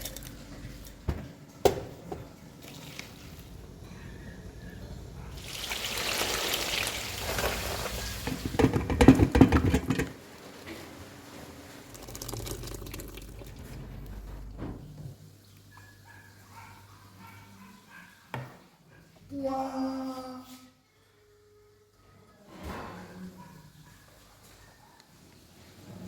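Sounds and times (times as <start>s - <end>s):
water pouring: 2.6s - 3.5s, 5.4s - 9.4s, 10.3s - 13.8s
clattering knocks: 8.3s - 10.2s.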